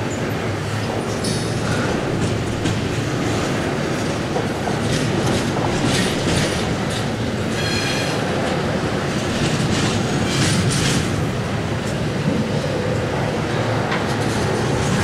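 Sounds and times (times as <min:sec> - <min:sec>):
train heavy rumble: 0:00.0 - 0:15.0
wheel clacks over rail joints: 0:00.9 - 0:12.0.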